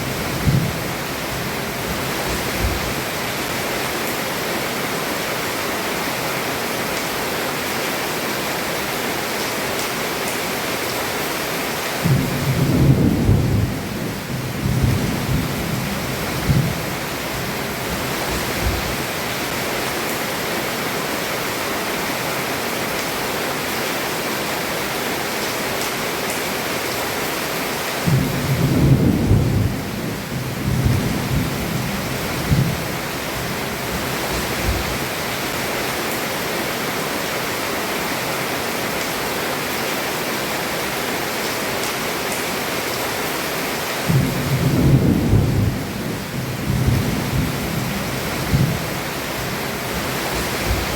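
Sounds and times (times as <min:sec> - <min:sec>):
heavy rain on a roof: 0:00.0 - 0:50.9
thunder rolling: 0:00.1 - 0:00.9, 0:28.0 - 0:32.8, 0:44.1 - 0:48.8.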